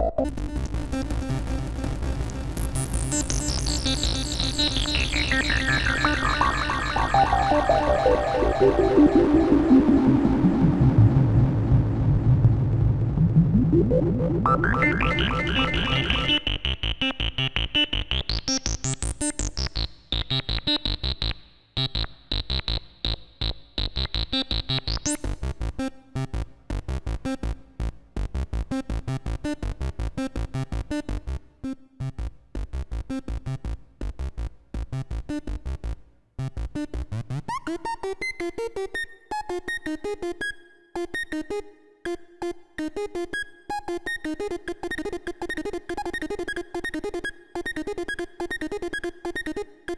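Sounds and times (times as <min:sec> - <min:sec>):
sequenced synth line: 0:03.3 - 0:17.7
bright synth sweep rising: 0:05.1 - 0:11.8, 0:13.3 - 0:16.4.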